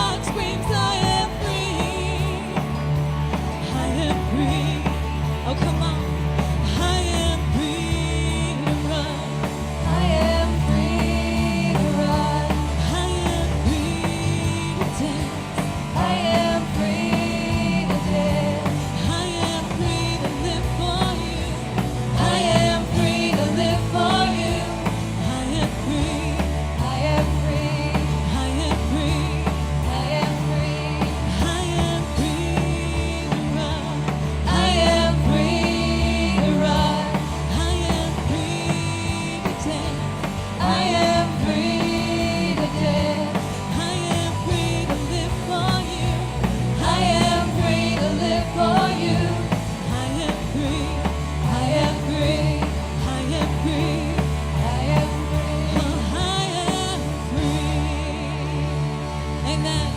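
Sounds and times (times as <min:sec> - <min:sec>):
bass line: 0:00.0 - 0:59.9
drums: 0:00.0 - 0:59.9
rock band playing: 0:00.0 - 0:59.9.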